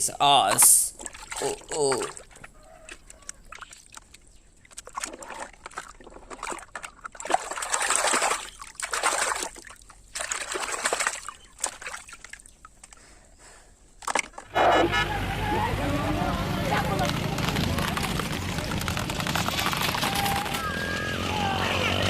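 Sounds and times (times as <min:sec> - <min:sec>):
water splashing on plastic toy: 0:00.4 - 0:13.0.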